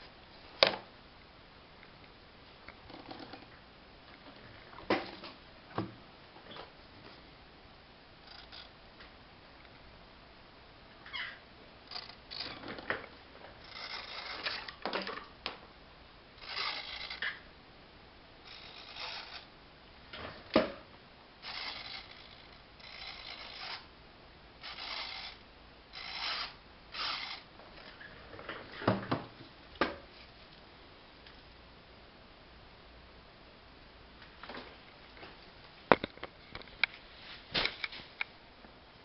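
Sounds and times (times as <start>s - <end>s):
servo whirring: 16.4s - 17.4s, 18.5s - 19.5s, 21.4s - 23.9s, 24.6s - 27.5s.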